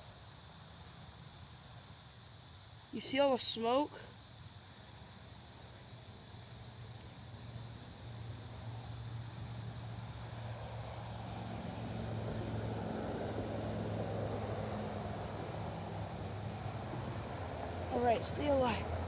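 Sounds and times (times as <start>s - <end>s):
insects chirring: 0.0s - 19.0s
low engine-like rumble: 11.4s - 19.0s.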